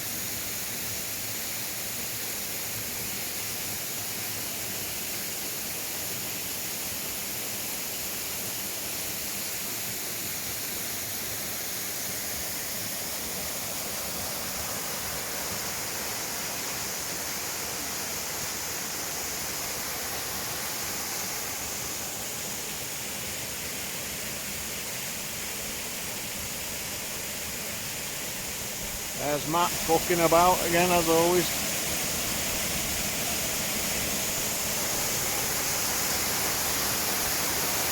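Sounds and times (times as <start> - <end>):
waterfall rushing: 11.3 - 37.9.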